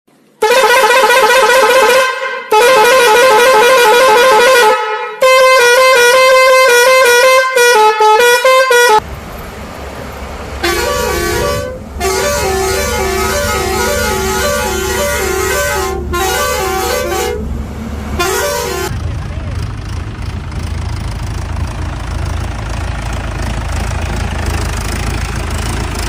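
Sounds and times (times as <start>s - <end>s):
vehicle horn honking: 0.4s - 9.0s, 10.6s - 19.0s
low rumble: 9.0s - 26.0s
tune playing: 10.2s - 19.0s.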